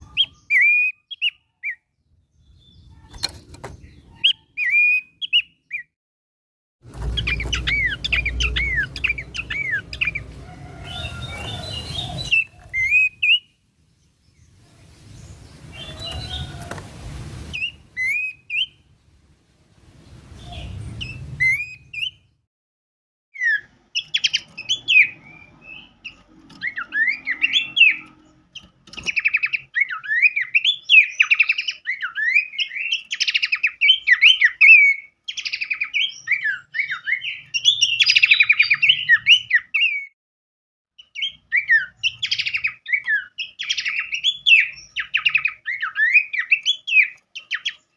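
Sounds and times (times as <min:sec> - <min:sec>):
songbirds singing: 0:00.0 - 0:06.0, 0:06.9 - 0:22.4, 0:23.4 - 0:40.2, 0:41.0 - 0:47.9
low background rumble: 0:18.8 - 0:22.0.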